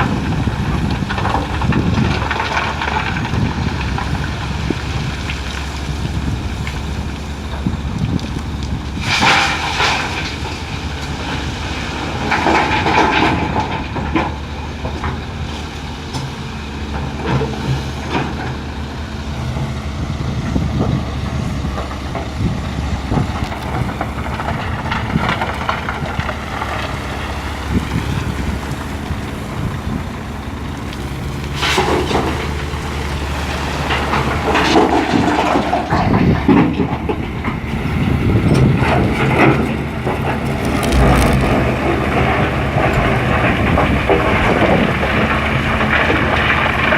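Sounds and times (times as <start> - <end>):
excavator engine and hydraulics: 0.0 - 46.9
rocks crashing into truck bed: 22.2 - 46.9.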